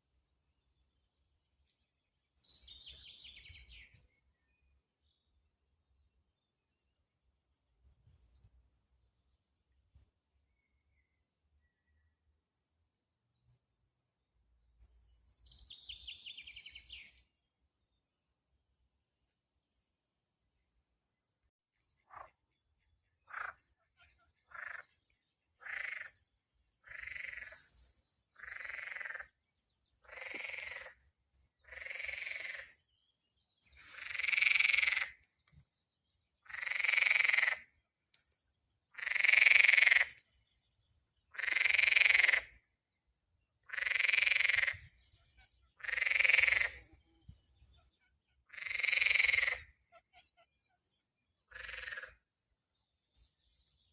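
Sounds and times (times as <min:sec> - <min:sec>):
frog calling: 0:23.3 - 0:24.9, 0:25.6 - 0:26.2, 0:26.8 - 0:27.6, 0:28.4 - 0:29.3, 0:30.1 - 0:31.0, 0:31.6 - 0:32.8, 0:34.0 - 0:35.2, 0:36.4 - 0:37.7, 0:39.0 - 0:40.2, 0:41.3 - 0:42.5, 0:43.7 - 0:46.9, 0:47.8 - 0:50.5, 0:51.5 - 0:52.2.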